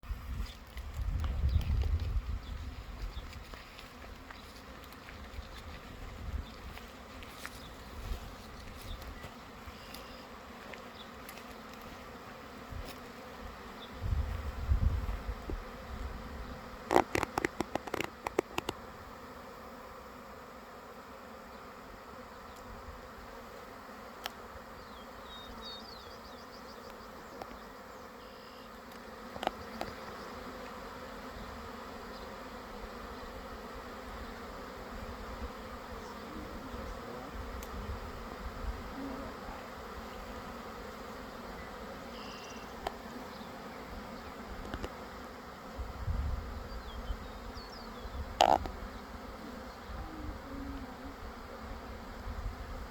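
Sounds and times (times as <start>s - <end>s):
bees buzzing: 0.0s - 52.9s.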